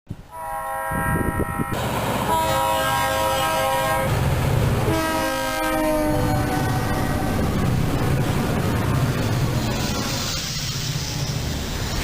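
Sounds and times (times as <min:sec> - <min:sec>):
train horn chord: 0:00.3 - 0:04.2, 0:04.9 - 0:07.5.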